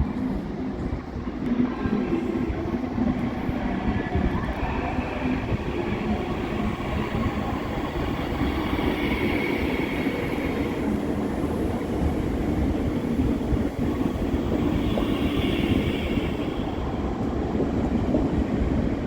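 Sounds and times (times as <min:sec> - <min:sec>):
high train whine: 0:00.0 - 0:19.0
train rumbling: 0:00.0 - 0:19.0.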